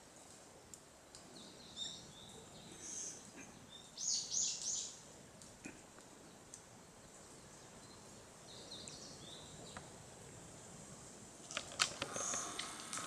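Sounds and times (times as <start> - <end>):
crackling clicks and rustles: 0.0 - 1.4, 5.3 - 8.2, 9.6 - 10.0, 11.3 - 13.0
faint bird chirps: 1.3 - 5.0.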